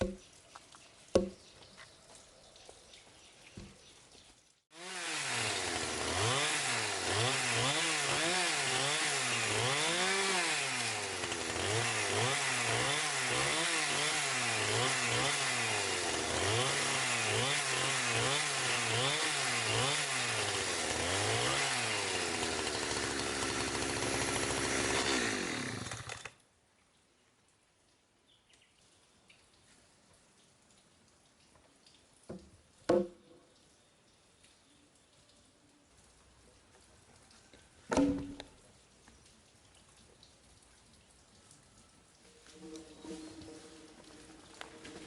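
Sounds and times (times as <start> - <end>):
chainsaw engine revving: 4.7 - 26.4.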